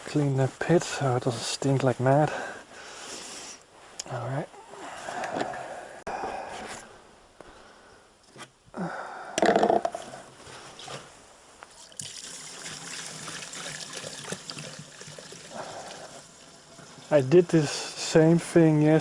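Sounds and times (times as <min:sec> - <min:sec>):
fuel trickling into a container: 0:11.8 - 0:17.2.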